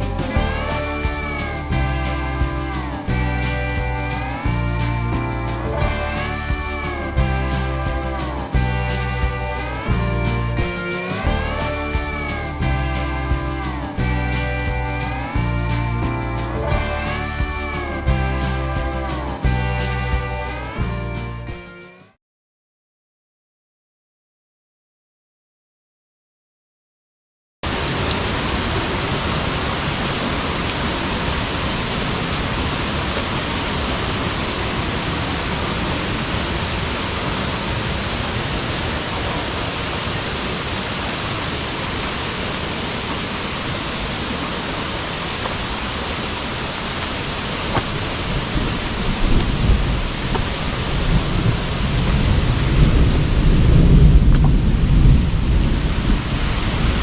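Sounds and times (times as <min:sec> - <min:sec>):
heavy rain pouring: 0:00.0 - 0:20.8, 0:27.6 - 0:57.0
rushing water: 0:00.0 - 0:21.4, 0:27.6 - 0:57.0
low rumble: 0:47.8 - 0:57.0.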